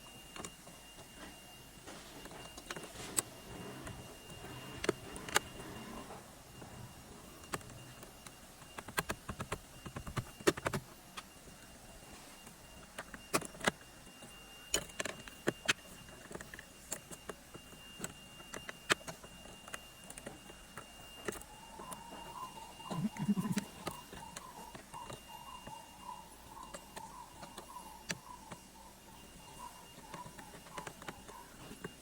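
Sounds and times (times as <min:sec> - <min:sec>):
faint steady high tone: 0:00.0 - 0:32.0
hard parts clicking and knocking: 0:29.3 - 0:32.0.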